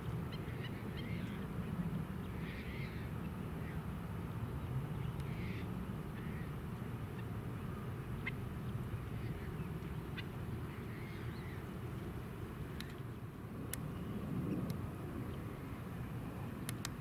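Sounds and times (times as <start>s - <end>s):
birds calling: 0.0s - 3.8s, 5.0s - 13.0s.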